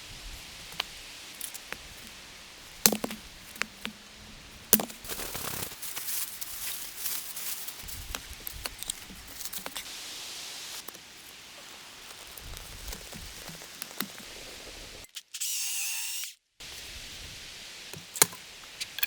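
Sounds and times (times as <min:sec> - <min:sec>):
fast dense crackling and snapping: 0:00.6 - 0:09.9, 0:10.8 - 0:15.1.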